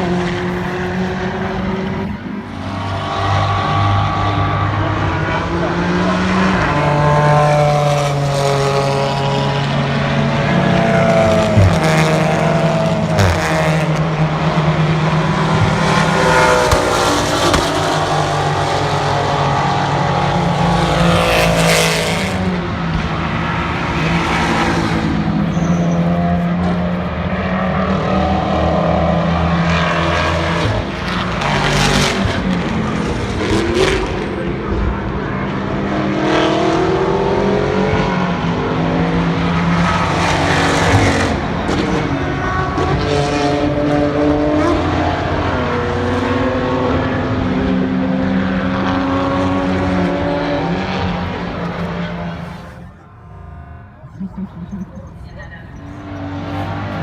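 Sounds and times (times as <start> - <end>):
racing car engines passing: 0.0 - 57.0
low engine drone: 49.8 - 57.0.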